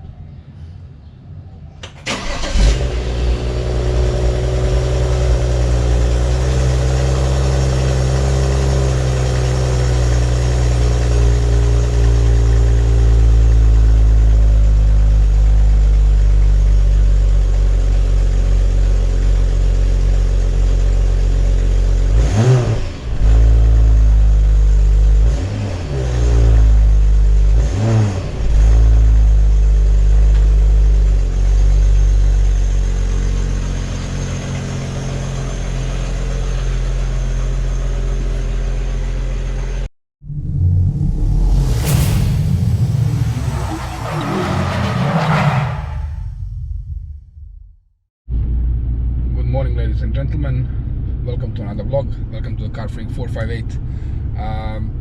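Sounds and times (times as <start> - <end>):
car engine idling: 1.8 - 22.2, 28.4 - 39.9, 48.3 - 55.0.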